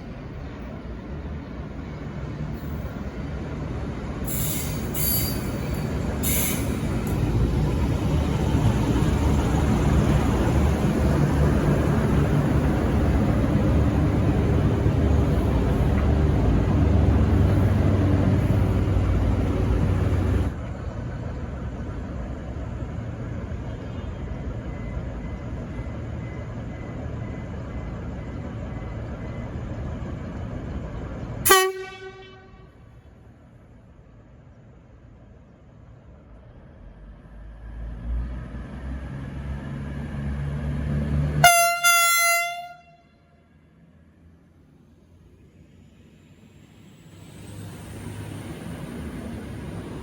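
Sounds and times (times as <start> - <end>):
diesel train rumbling past: 0.0 - 50.0
train horn toot: 31.4 - 32.8, 41.4 - 43.4.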